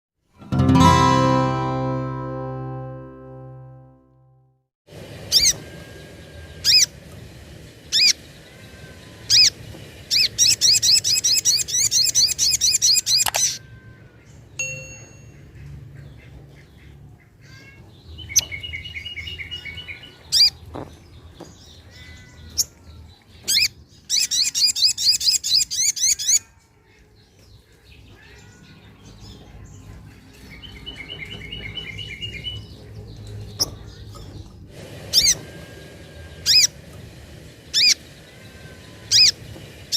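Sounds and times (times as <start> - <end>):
bird fast trilling: 7.9 - 13.6, 35.1 - 35.4, 36.3 - 36.8, 37.7 - 39.4.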